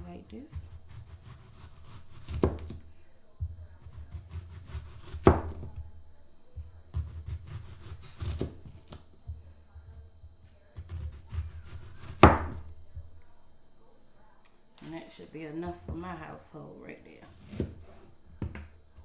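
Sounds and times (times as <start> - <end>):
knife cutting onion: 0.0 - 3.0, 3.8 - 6.0, 6.9 - 9.1, 10.7 - 13.2, 17.3 - 19.0.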